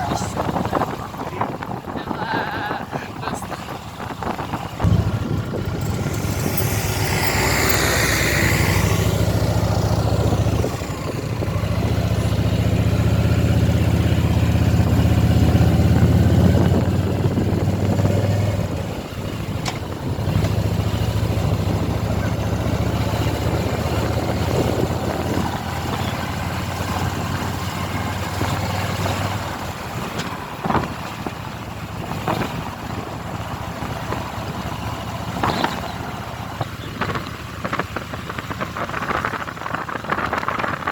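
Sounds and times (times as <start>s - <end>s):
motorcycle engine running: 3.5s - 40.9s.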